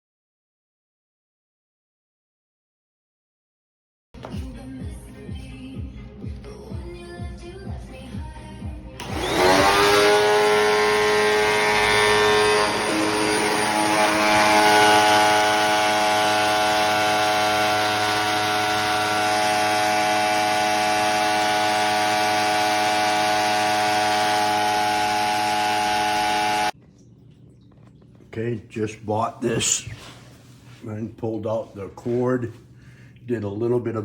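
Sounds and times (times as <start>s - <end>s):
vacuum cleaner motor whine: 9.0s - 26.8s.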